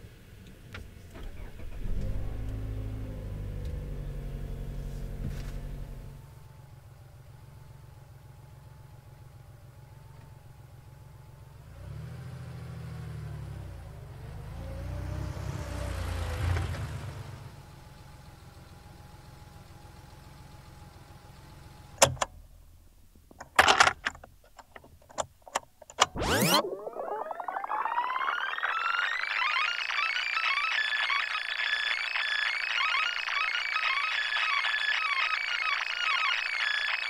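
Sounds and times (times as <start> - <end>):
car engine running and revving: 0.1 - 22.0.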